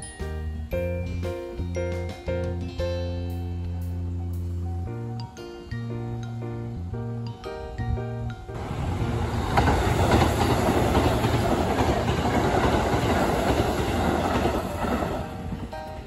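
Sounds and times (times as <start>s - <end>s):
train wheels rumbling and clacking: 8.6s - 16.0s.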